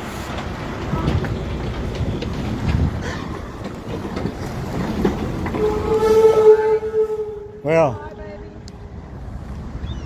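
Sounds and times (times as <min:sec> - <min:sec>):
clattering and knocking: 0:00.7 - 0:05.9.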